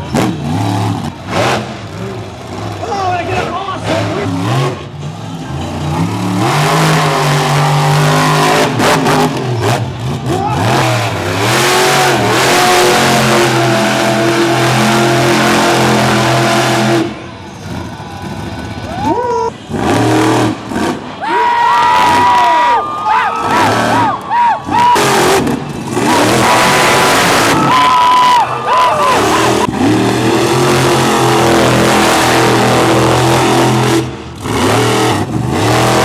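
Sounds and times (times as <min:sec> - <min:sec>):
truck engine revving hard: 0:00.0 - 0:36.0.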